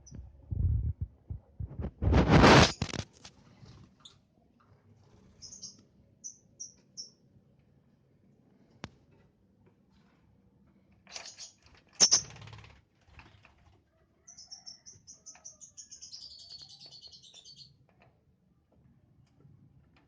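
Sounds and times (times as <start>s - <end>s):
scratchy rustles: 0.8s - 4.0s
lovebird chirping: 5.4s - 7.2s, 14.3s - 17.8s.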